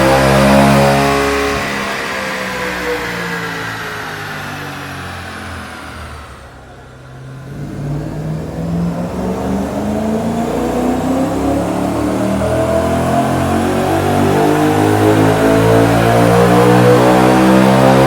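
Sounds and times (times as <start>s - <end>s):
car engine revving under load: 0.0s - 18.0s.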